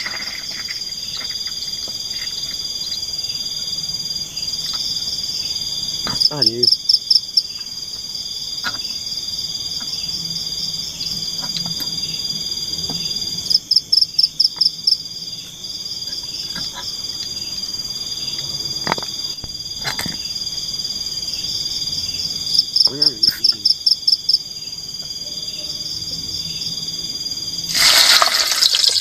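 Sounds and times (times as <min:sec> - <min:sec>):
insects and frogs trilling: 0:00.0 - 0:29.0.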